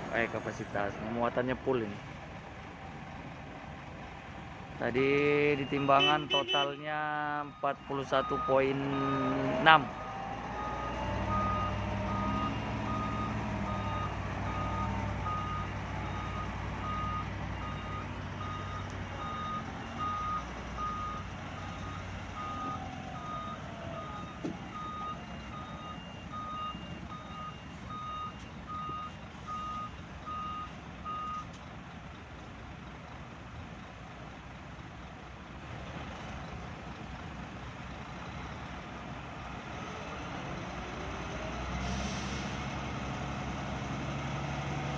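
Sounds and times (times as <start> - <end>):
heavy diesel engine: 0.0 - 44.9
truck reversing alarm beeps: 5.4 - 6.8, 7.4 - 31.5.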